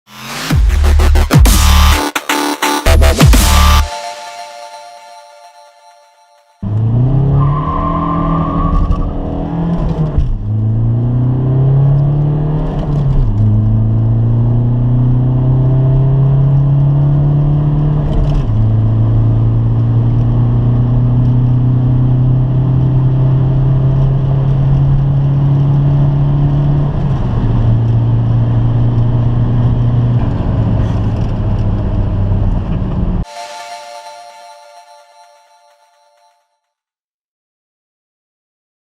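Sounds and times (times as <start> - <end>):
car engine accelerating hard: 6.6 - 33.2.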